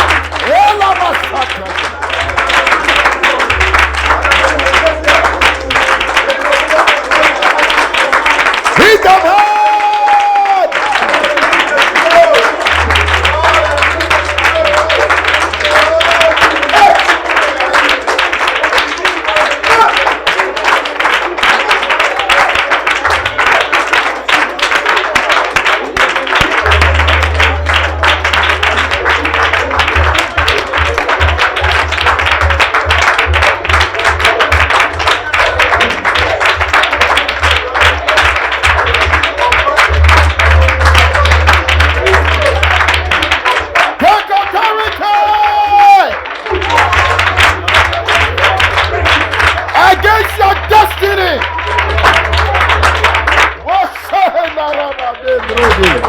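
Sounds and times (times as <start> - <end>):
low bass line: 0.0 - 7.2, 12.2 - 17.4, 26.4 - 43.7, 46.5 - 53.7
keyboard sustained low notes: 0.0 - 8.7, 11.0 - 21.4, 22.5 - 44.0, 46.2 - 53.9
many voices praying aloud: 0.0 - 56.0
rhythmic hand clapping: 0.0 - 56.0.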